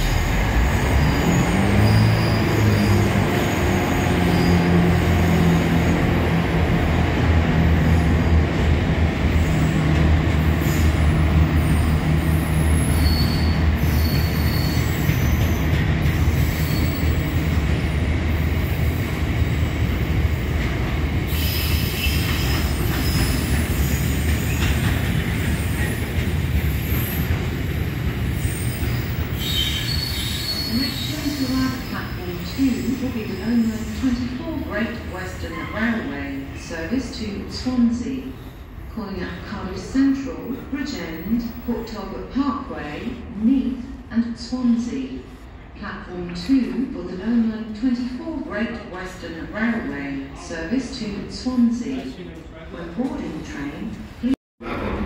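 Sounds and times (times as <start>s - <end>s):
train low drone: 0.0s - 13.0s
high-pitched wheel squeals: 12.7s - 15.6s.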